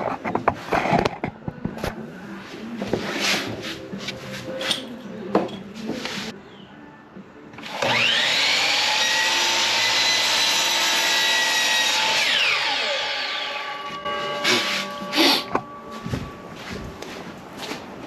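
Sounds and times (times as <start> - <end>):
electric power saw cutting plywood: 7.6 - 15.6.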